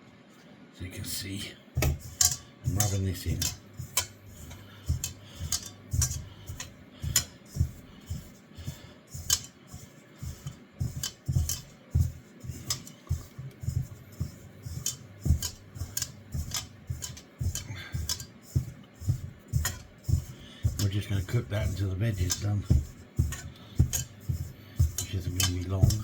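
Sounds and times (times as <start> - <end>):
soft low thumps: 10.4 - 26.0.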